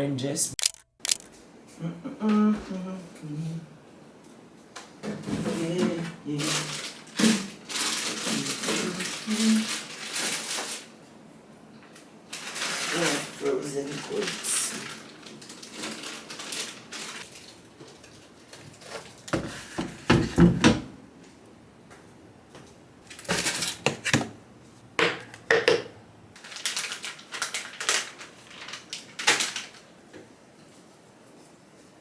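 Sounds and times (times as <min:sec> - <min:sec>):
bags rustling: 0:12.3 - 0:19.6, 0:26.4 - 0:29.8
groceries knocking and clattering: 0:14.0 - 0:21.0, 0:22.6 - 0:29.8.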